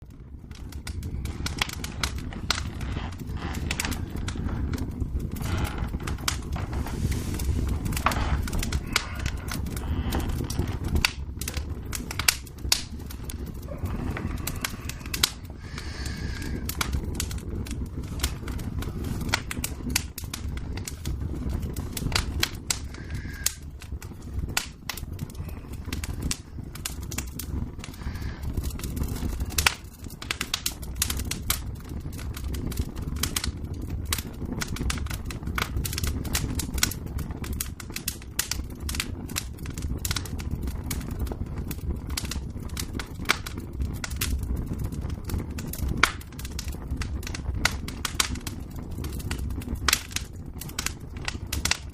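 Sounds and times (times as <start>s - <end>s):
low rumble of flames: 0.0s - 51.9s
wood fire crackling and popping: 0.0s - 51.9s.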